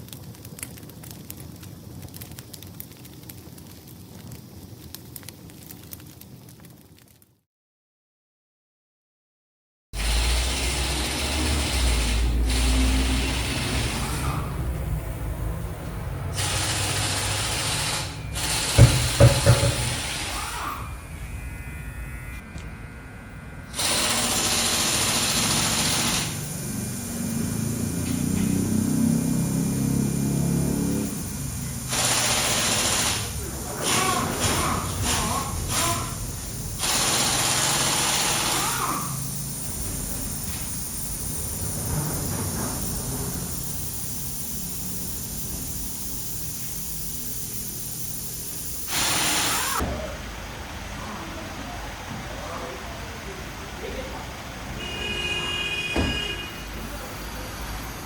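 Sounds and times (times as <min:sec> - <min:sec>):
low mechanical rumble: 0:10.0 - 0:23.8
machine humming: 0:10.0 - 0:49.8
loud steady hiss: 0:10.0 - 0:58.0
faint high whine: 0:18.0 - 0:28.4, 0:38.9 - 0:49.8.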